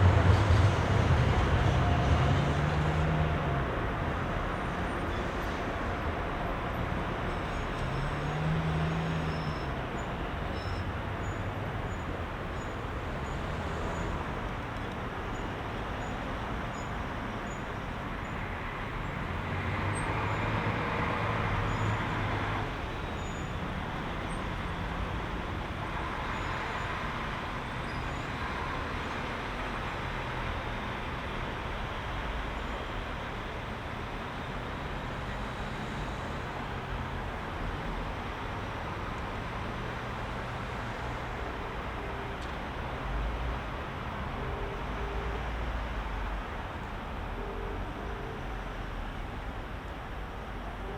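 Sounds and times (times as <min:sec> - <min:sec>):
vehicle passing: 0:00.0 - 0:03.5
city traffic engines and tyres: 0:00.0 - 0:50.9.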